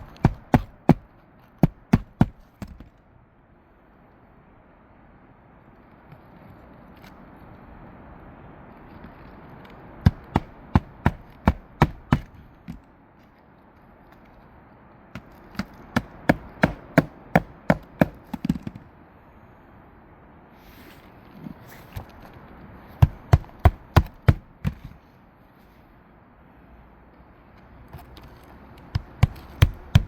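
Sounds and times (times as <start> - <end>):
hammer driving nails: 0.0 - 1.0, 1.6 - 2.8, 10.0 - 12.4, 15.6 - 18.7, 23.0 - 24.9, 28.9 - 30.0.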